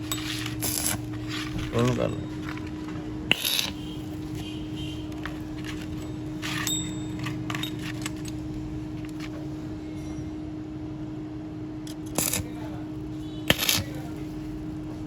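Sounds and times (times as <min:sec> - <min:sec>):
steady low hum: 0:00.0 - 0:15.0
metallic clinks of hand tools: 0:05.6 - 0:08.5, 0:11.9 - 0:12.6.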